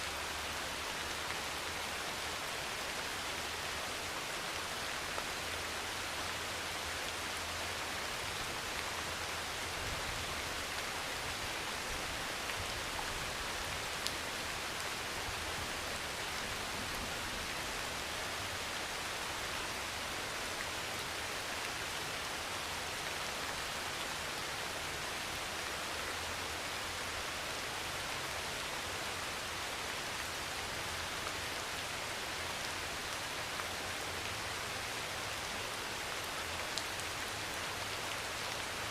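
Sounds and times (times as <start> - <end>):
heavy rain on a metal roof: 0.0 - 38.9.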